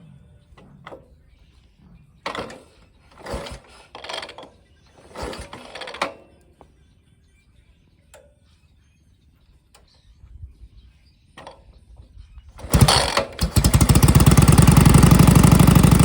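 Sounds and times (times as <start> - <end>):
motorcycle kick-starter clattering: 2.2 - 6.4, 12.5 - 16.0.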